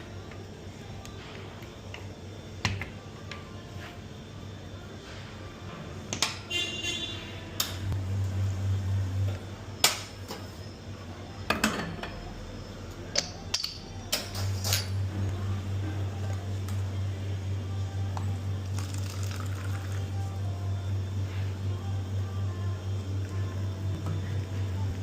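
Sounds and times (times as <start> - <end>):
espresso machine hum: 7.8 - 10.4, 14.9 - 25.0
metal and china clinking: 13.1 - 15.0.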